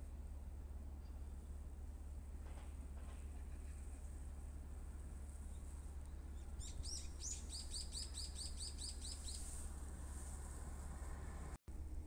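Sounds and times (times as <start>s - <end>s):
small songbird singing: 5.5s - 9.5s.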